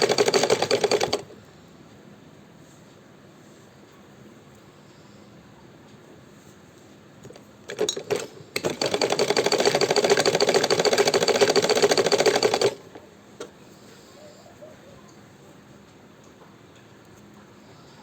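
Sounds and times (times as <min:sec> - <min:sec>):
sewing machine stitching: 0:00.0 - 0:01.2, 0:07.7 - 0:13.0
sewing machine clicks: 0:00.0 - 0:01.3, 0:07.3 - 0:13.5.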